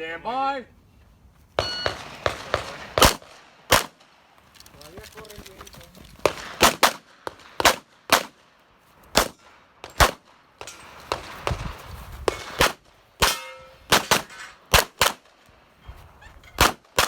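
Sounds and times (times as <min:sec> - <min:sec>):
pistol shots: 0:01.6 - 0:04.2, 0:06.2 - 0:08.5, 0:09.1 - 0:11.6, 0:12.3 - 0:15.3, 0:16.6 - 0:17.0
steel targets clanging: 0:10.6 - 0:11.2, 0:13.2 - 0:14.7.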